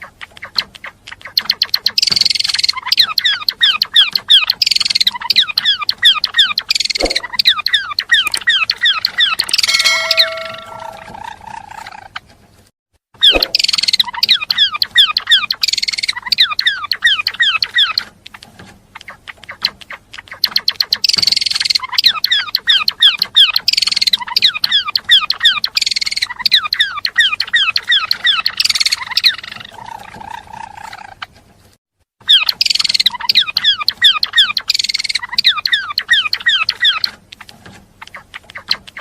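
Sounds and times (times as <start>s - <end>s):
songbird singing: 0.0s - 12.1s, 13.2s - 18.1s, 32.2s - 37.2s.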